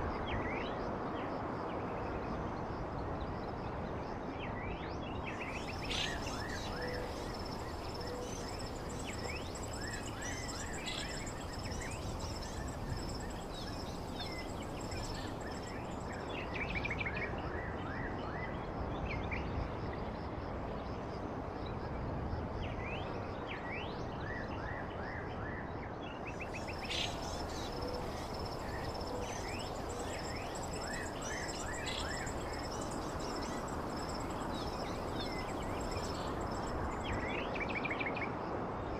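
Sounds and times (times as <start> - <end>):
background hiss: 5.2 - 16.7, 26.4 - 37.5
birds chirping: 5.4 - 16.2, 26.4 - 37.1
high insect-like trill: 5.5 - 16.2, 26.5 - 37.2.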